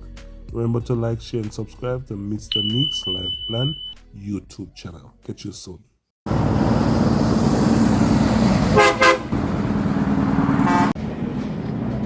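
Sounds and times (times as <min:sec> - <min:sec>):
car horn tooting: 0:02.5 - 0:04.0, 0:08.8 - 0:09.3.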